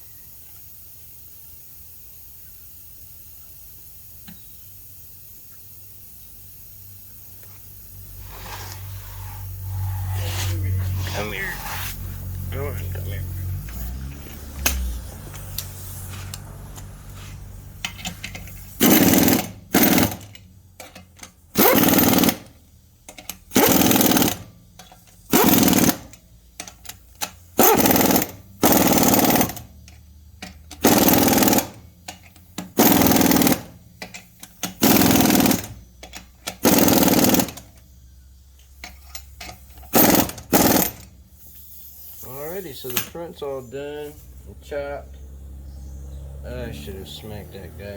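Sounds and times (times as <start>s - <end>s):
impact wrench hammering: 17.8s - 21.0s, 21.6s - 22.5s, 23.1s - 24.4s, 25.4s - 29.7s, 30.4s - 37.7s, 38.9s - 41.0s.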